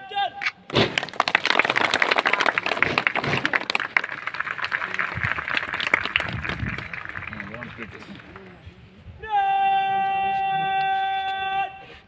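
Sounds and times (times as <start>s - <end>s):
crowd applauding: 0.9s - 8.6s.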